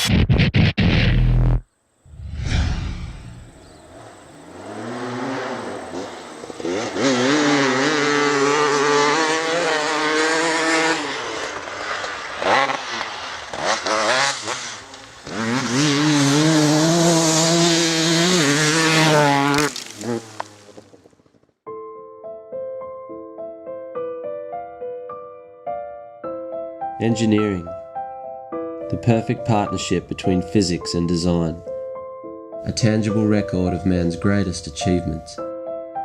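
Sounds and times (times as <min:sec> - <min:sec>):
two-stroke engine revving: 0:03.9 - 0:20.9.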